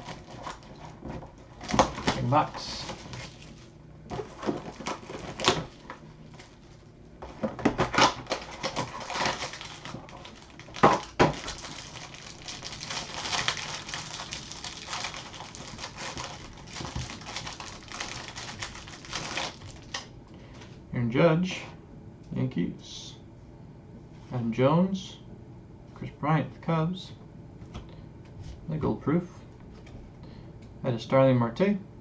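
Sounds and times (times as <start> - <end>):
crackly rustle of wrappers: 0.0 - 20.1.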